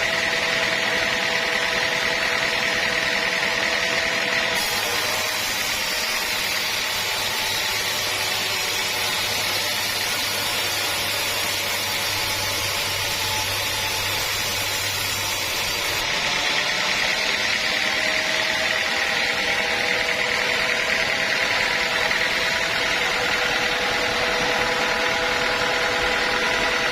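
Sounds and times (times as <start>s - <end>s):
sawmill saw whining: 0.0s - 26.9s.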